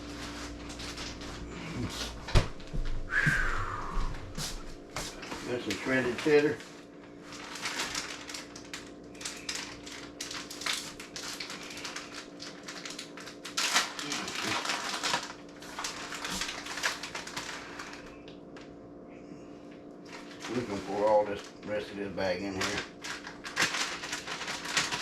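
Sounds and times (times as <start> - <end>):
plastic bag crinkling: 0.0 - 1.8, 5.1 - 18.2, 20.0 - 25.0
faint steady hum: 0.0 - 25.0.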